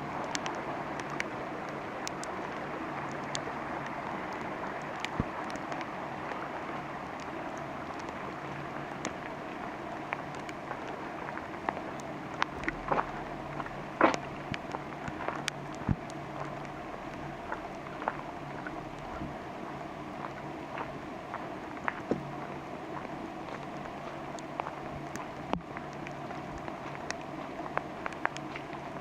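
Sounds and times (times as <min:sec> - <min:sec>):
raindrops tapping nearby: 0:00.0 - 0:29.0
steady rain hiss: 0:00.0 - 0:29.0.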